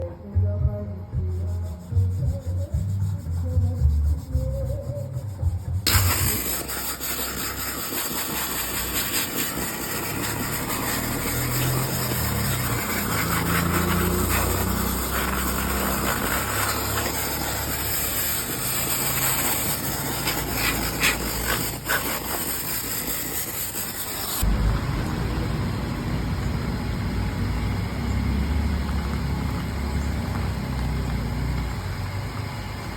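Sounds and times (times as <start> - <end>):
sandblaster hissing: 5.8 - 24.5
low engine-like rumble: 24.4 - 32.9.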